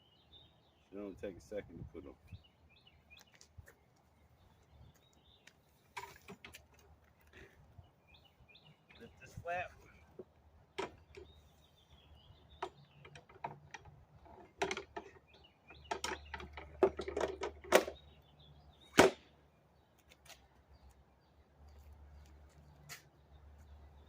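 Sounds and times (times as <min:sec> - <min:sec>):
bag clicking and knocking on mower: 0:12.6 - 0:18.0.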